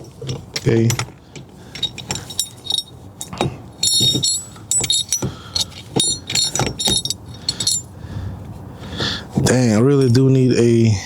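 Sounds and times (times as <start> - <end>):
metal parts clinking: 0.0 - 8.0.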